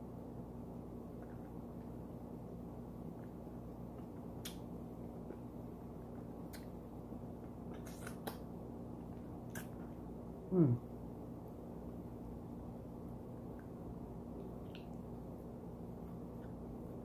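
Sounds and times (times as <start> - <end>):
steady low hum: 0.0 - 17.0
wet chewing mouth smacks: 9.4 - 9.9.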